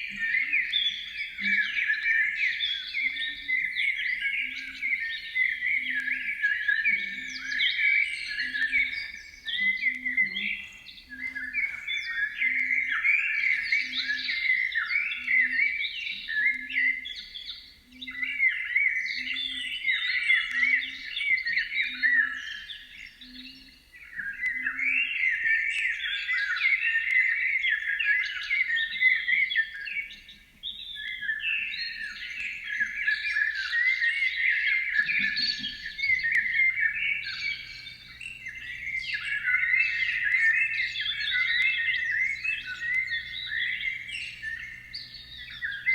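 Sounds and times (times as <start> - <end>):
songbird warbling: 0.0 - 45.9
low hum: 37.2 - 45.9.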